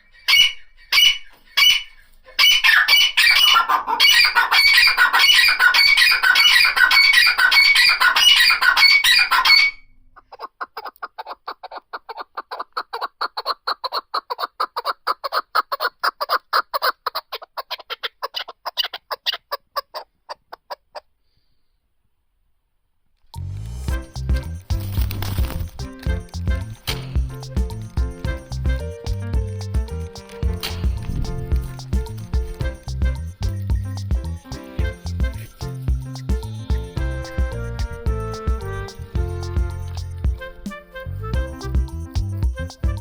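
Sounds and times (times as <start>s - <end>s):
partridges calling: 0.0s - 9.8s.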